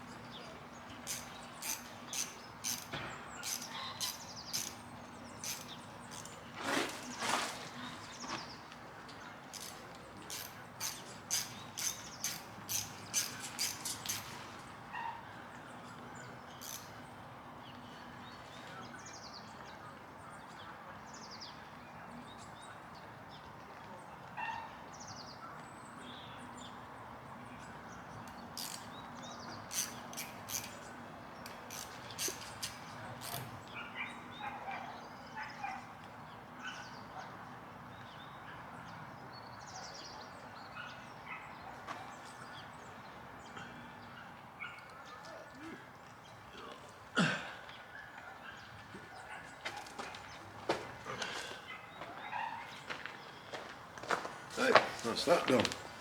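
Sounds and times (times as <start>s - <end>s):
hand tools clicking and tapping: 0.0s - 6.4s, 9.5s - 14.4s, 16.6s - 17.0s, 28.3s - 28.9s, 29.6s - 33.6s
birds chirping: 0.0s - 22.7s, 27.4s - 35.8s, 37.9s - 56.0s.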